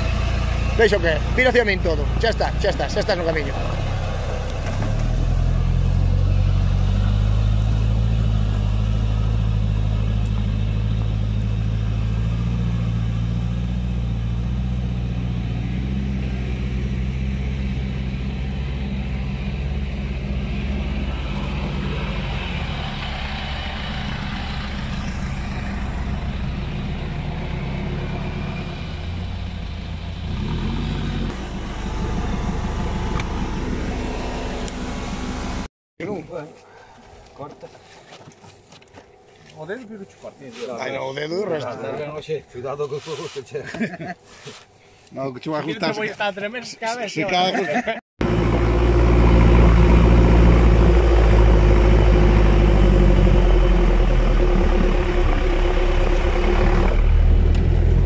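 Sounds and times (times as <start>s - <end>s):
off-road vehicle engine running: 0.0s - 35.7s, 48.2s - 58.0s.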